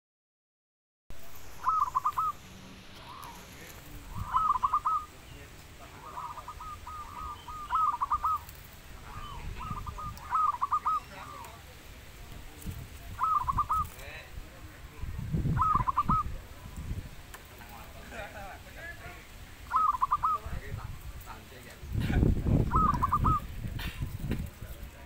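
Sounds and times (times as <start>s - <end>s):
dove cooing: 1.6s - 11.7s, 13.1s - 14.1s, 15.4s - 16.8s, 19.6s - 20.5s, 22.1s - 24.0s.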